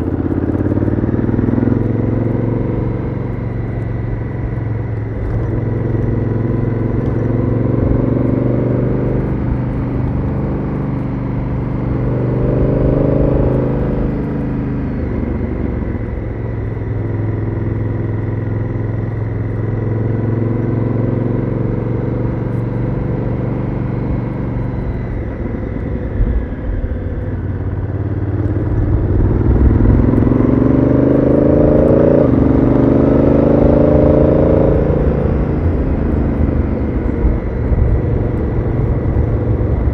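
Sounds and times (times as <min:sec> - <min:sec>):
motorcycle engine revving: 0:00.0 - 0:39.9
wind rumble: 0:22.0 - 0:39.9.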